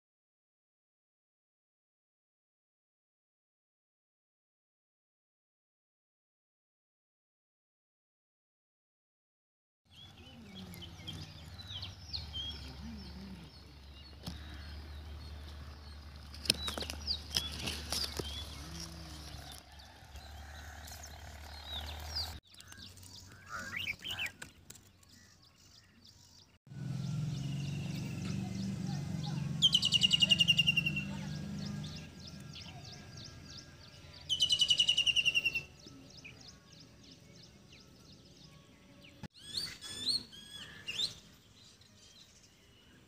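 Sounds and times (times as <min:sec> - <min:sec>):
small birds chirping: 0:09.9 - 0:43.0.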